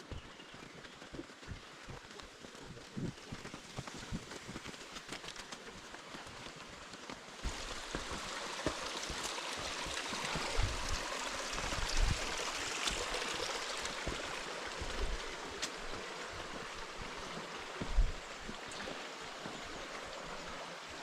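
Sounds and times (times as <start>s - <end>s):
rushing river water: 0.0s - 21.0s.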